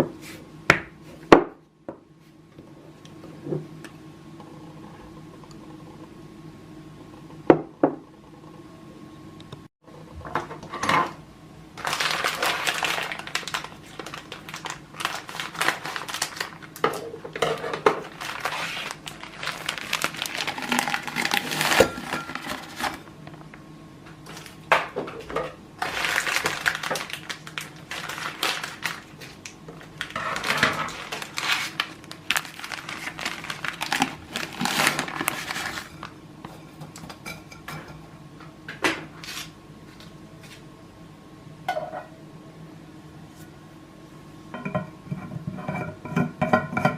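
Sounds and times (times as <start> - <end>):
steady low hum: 0.0 - 46.9
wrappers crinkling: 11.8 - 16.8, 18.0 - 23.0, 25.8 - 36.1
kitchen items knocking and clinking: 20.0 - 23.0, 30.1 - 31.5.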